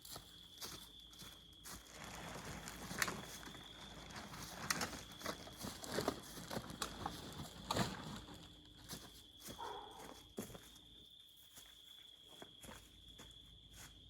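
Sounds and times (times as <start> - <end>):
crunching in dry leaves: 1.7 - 10.0.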